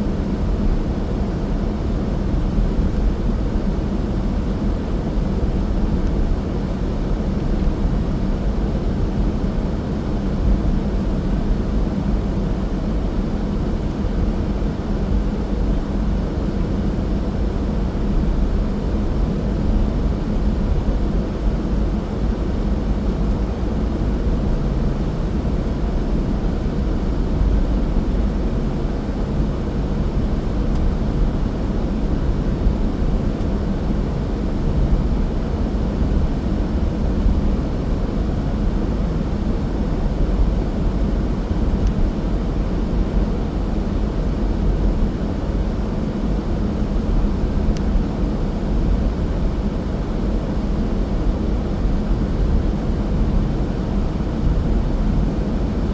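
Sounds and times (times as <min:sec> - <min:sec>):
car engine and road noise: 0:22.3 - 0:32.0, 0:32.6 - 0:45.0.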